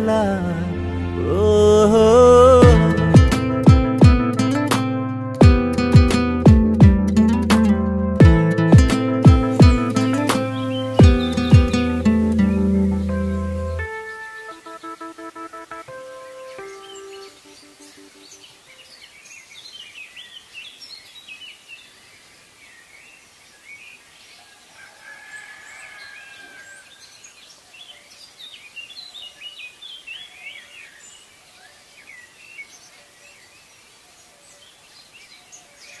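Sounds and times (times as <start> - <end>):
birds chirping and calling: 9.3 - 15.0, 16.2 - 21.7.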